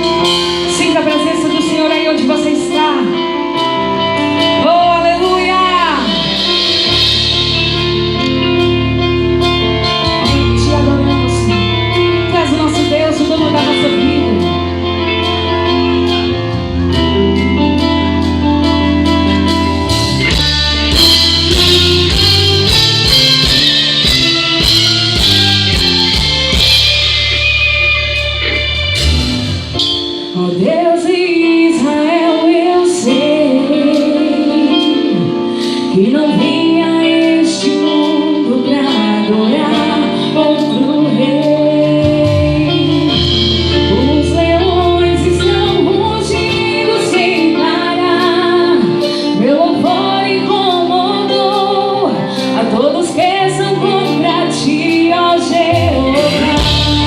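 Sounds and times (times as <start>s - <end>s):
drums with cymbals: 0.0s - 1.3s, 6.0s - 10.8s, 19.4s - 30.5s, 42.0s - 47.6s, 55.6s - 57.0s
woman singing: 0.0s - 16.2s, 30.2s - 57.0s
bass guitar: 0.0s - 57.0s
electric guitar: 0.0s - 57.0s
keyboards: 0.0s - 57.0s.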